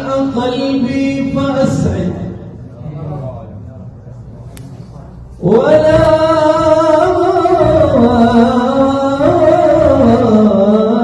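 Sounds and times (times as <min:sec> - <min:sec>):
men singing a praise song: 0:05.4 - 0:11.0.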